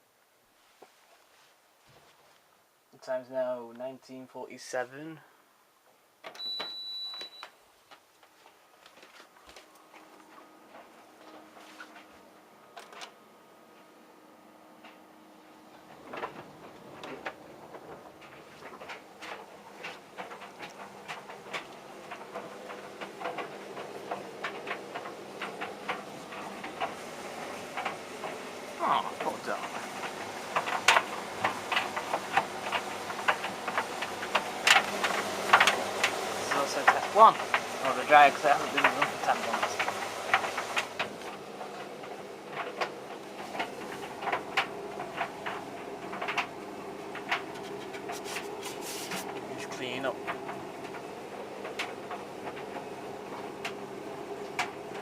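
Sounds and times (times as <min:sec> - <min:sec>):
tumble dryer motor hum: 0:08.6 - 0:55.0
clothes knocking in dryer drum: 0:15.7 - 0:55.0.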